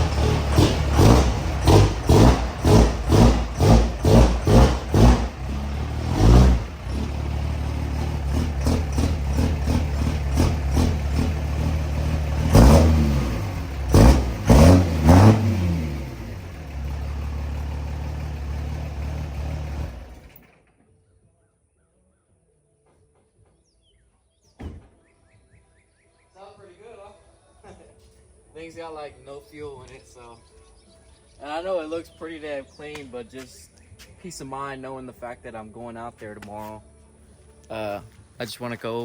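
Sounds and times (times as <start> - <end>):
engine throttle blips: 0.0 - 20.7
truck engine lopey idle: 0.0 - 20.7.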